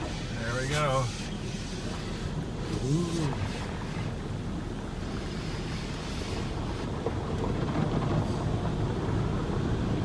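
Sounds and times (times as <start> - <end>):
car wash spraying water: 0.0 - 3.6.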